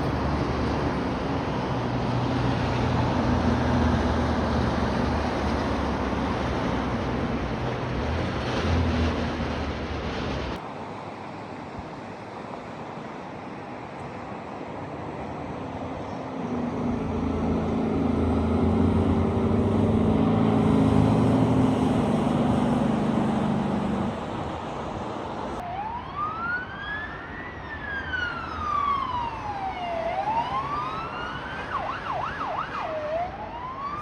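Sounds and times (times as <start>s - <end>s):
diesel truck engine passing: 0.0s - 10.6s, 14.6s - 27.1s
emergency vehicle siren: 16.3s - 23.6s, 25.6s - 34.0s.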